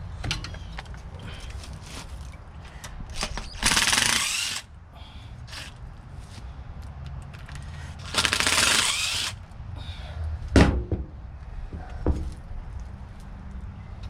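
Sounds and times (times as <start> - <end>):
power drill running: 3.6 - 4.6, 8.0 - 9.4.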